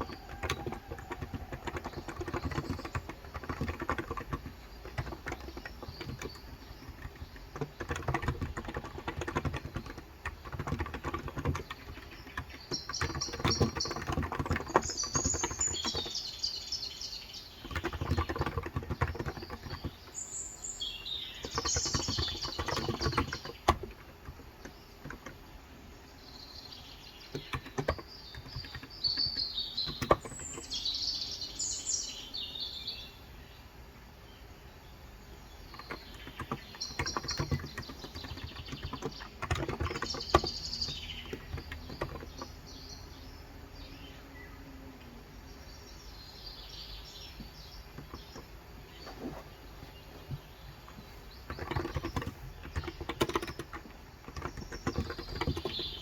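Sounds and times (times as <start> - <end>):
typing on keyboard: 0.0 - 16.4, 17.5 - 20.2, 20.8 - 25.5, 27.3 - 30.8, 35.6 - 42.8, 50.3 - 56.0
birds chirping: 0.0 - 56.0.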